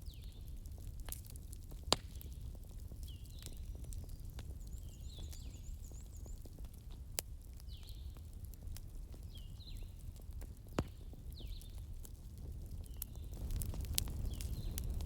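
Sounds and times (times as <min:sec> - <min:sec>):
wood fire crackling: 0:00.0 - 0:15.0
small birds chirping: 0:02.0 - 0:06.9, 0:07.6 - 0:08.3, 0:09.1 - 0:10.0, 0:10.7 - 0:11.9, 0:12.7 - 0:15.0.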